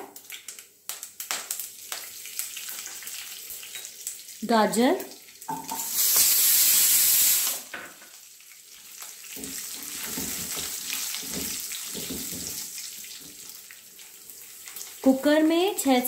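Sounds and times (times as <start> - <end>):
vegetables sizzling in hot oil: 0.0 - 16.0
spatula stirring in pan: 8.5 - 15.0.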